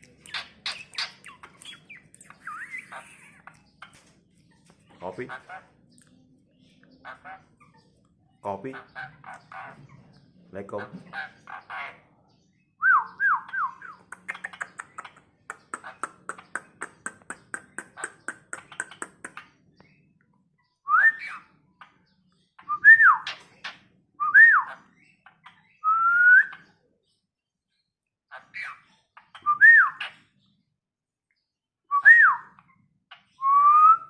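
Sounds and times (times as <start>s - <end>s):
rapid clicking chatter: 0.0s - 4.1s, 14.0s - 19.5s
starling whistling: 0.6s - 3.4s, 20.8s - 21.4s, 25.8s - 26.6s, 29.4s - 30.2s, 31.9s - 32.6s, 33.4s - 34.0s.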